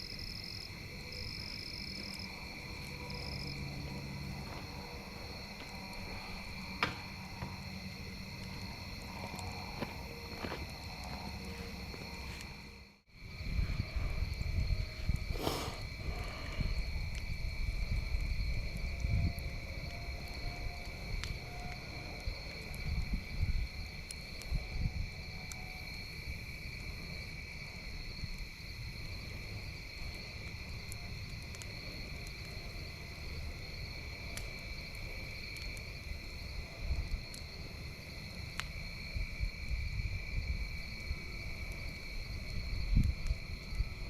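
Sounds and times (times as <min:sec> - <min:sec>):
campfire crackling pops: 0:00.0 - 0:13.5, 0:14.3 - 0:44.0
crickets chirping: 0:00.0 - 0:44.0
low uneven rumble: 0:00.8 - 0:21.0.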